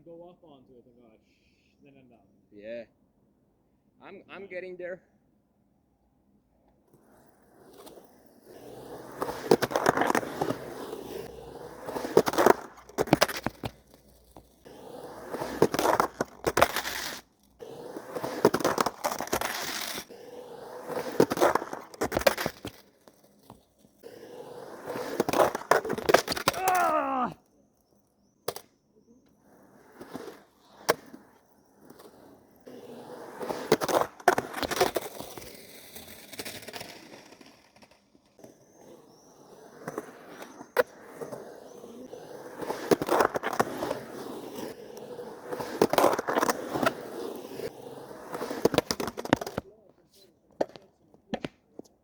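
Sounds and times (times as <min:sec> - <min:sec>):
skateboard wheels rolling: 0:06.2 - 0:52.0
skateboard trucks grinding squeal: 0:06.9 - 0:28.0, 0:29.1 - 0:49.6.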